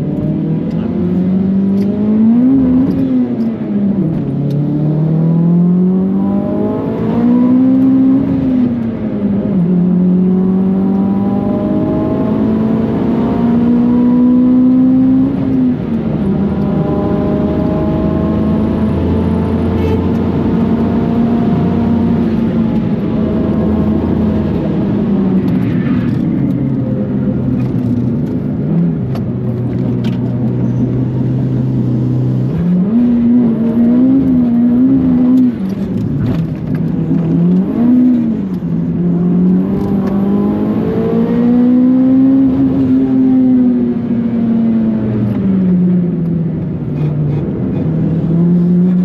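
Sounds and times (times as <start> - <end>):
turbocharged car engine revving: 9.6 - 26.3, 30.6 - 46.2.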